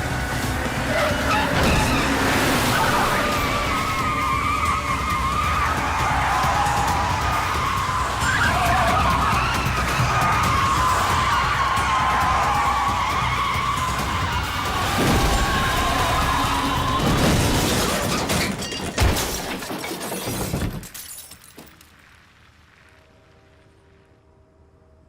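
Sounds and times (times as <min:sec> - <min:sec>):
dramatic music: 0:00.0 - 0:18.4
car tyres squealing: 0:00.0 - 0:18.8
crash with shattering glass: 0:14.8 - 0:22.0.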